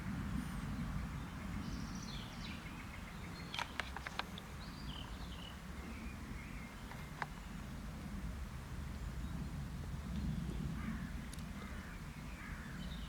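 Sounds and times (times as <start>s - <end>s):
steady low rumble: 0.0s - 3.4s, 4.4s - 13.0s
sharp clicks: 3.5s - 4.4s.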